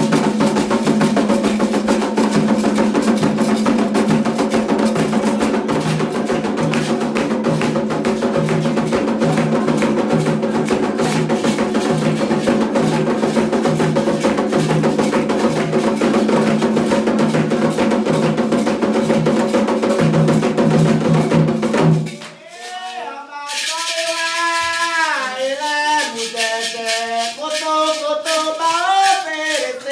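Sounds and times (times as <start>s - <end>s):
hand drums fast rhythm: 0.0s - 22.2s, 23.6s - 29.9s
sharp wood-block-like strikes: 0.0s - 22.2s.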